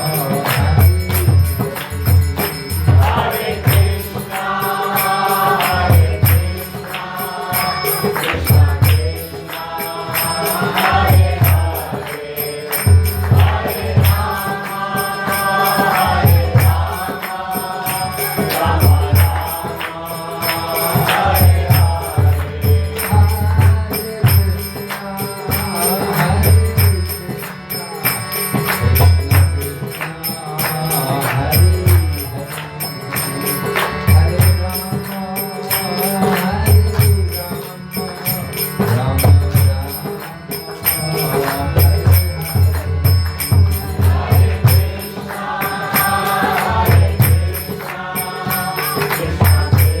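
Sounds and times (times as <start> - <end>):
hand drum beat: 0.0 - 7.2, 8.0 - 25.2
jingling hand cymbals: 0.0 - 50.0
voices chanting: 2.9 - 23.8, 41.3 - 50.0.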